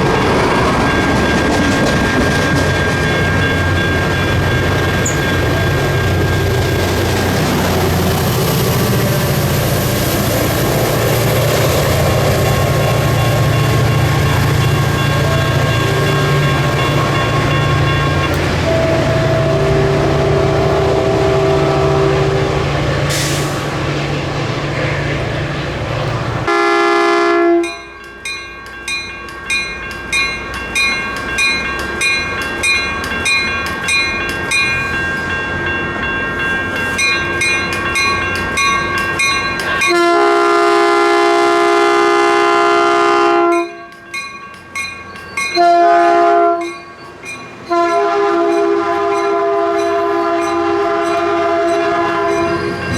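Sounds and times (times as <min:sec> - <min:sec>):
bell ringing: 0:00.0 - 0:07.4, 0:12.3 - 0:19.3, 0:27.6 - 0:40.0, 0:43.6 - 0:45.9, 0:46.6 - 0:52.9
train passing rumble: 0:00.0 - 0:52.9
train horn: 0:18.5 - 0:23.5, 0:26.5 - 0:27.9, 0:39.9 - 0:43.9, 0:45.6 - 0:46.8, 0:47.7 - 0:52.9.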